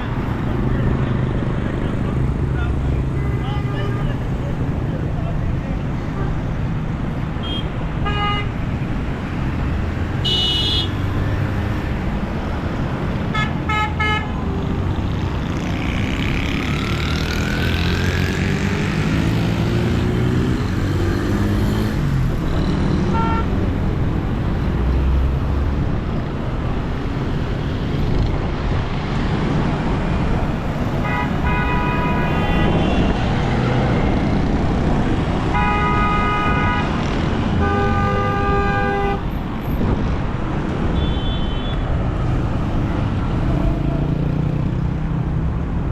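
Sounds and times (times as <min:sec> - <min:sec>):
traffic engines running: 0:00.0 - 0:45.9
car horns honking: 0:10.2 - 0:11.0, 0:23.0 - 0:23.6, 0:31.0 - 0:33.2, 0:35.5 - 0:39.3, 0:40.9 - 0:41.8
vehicle speeding up: 0:15.3 - 0:23.2.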